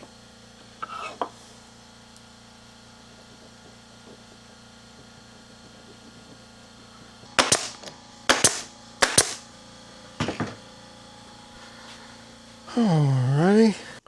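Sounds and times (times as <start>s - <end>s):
sharp double cracks: 7.4s - 9.5s.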